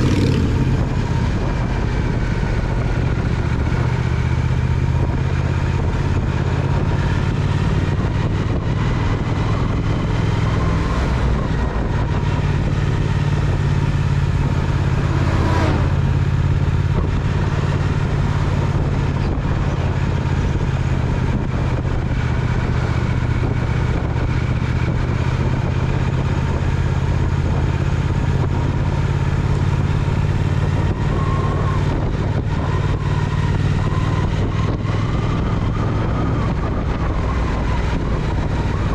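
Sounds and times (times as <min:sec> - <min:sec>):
motorcycle engine running: 0:00.0 - 0:38.9
brief whoosh: 0:14.5 - 0:16.5.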